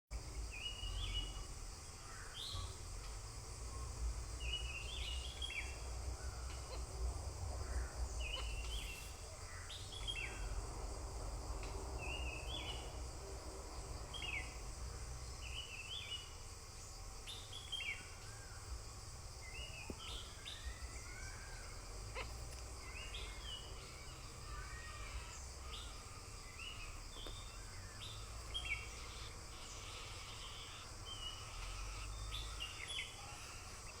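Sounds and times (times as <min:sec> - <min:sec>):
steady high hiss: 0:00.1 - 0:34.0
small bird chirping: 0:07.8 - 0:10.5, 0:19.4 - 0:34.0.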